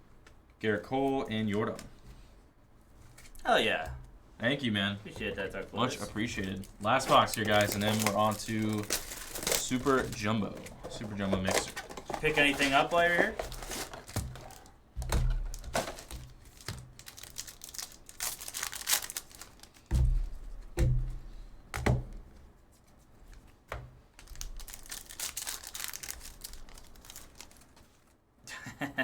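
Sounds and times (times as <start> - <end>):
foil packs torn and crinkled: 5.2 - 19.9, 24.2 - 28.2.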